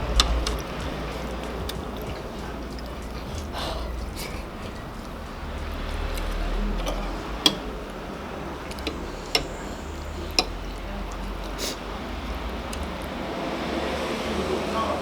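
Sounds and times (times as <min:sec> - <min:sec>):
cutlery clicking against a dish: 0:00.0 - 0:03.6, 0:05.9 - 0:08.0, 0:08.6 - 0:11.6
low steady hum: 0:00.0 - 0:13.4.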